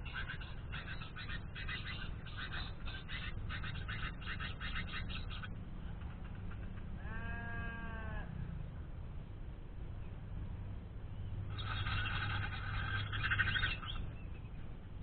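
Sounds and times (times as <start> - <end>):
bird chirping rapidly: 0.0 - 6.7, 11.5 - 14.6
steady low hum: 0.0 - 15.0
bleat-like animal call: 7.0 - 8.5.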